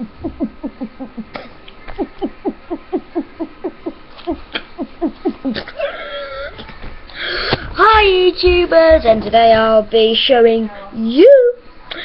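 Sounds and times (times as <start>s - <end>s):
person making throat pulses: 0.0s - 6.6s.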